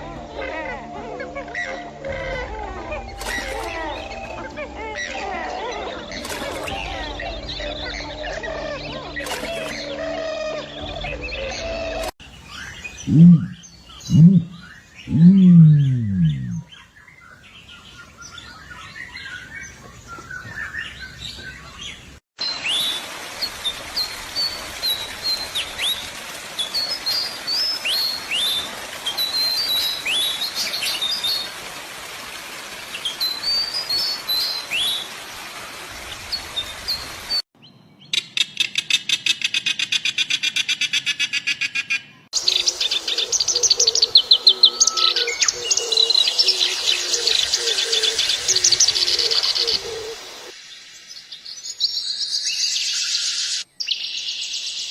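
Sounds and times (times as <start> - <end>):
low falling bird call: 5.3 - 16.7
sharp downward-sweeping bird chirps: 12.6 - 16.7.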